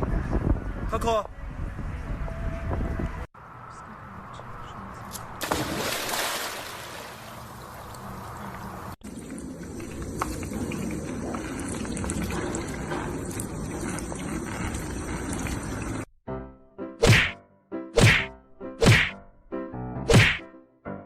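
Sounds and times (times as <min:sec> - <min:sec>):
water running and splashing: 0:05.4 - 0:16.1.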